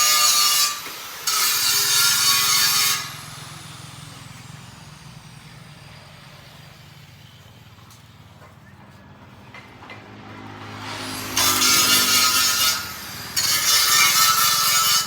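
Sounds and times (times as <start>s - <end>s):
power grinder on metal: 0.0s - 7.1s, 10.1s - 15.0s.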